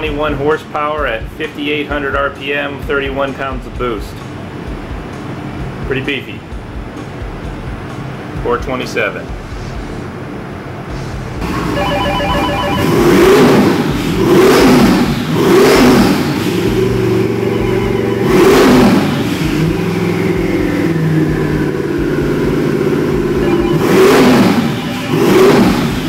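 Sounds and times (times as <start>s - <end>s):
engine revving: 9.3s - 26.0s
rapid electronic beeping: 11.4s - 14.0s, 16.6s - 19.9s, 23.2s - 26.0s
high turbocharger whistle: 11.4s - 21.4s, 23.1s - 26.0s.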